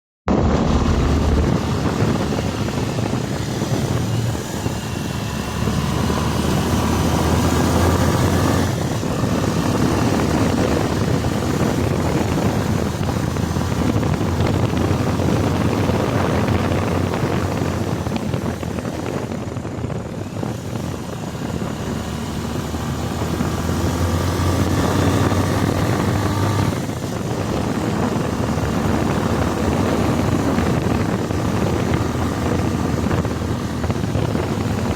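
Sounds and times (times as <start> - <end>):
motorcycle engine running: 0.3 - 34.9
wind rush on microphone: 0.3 - 34.9.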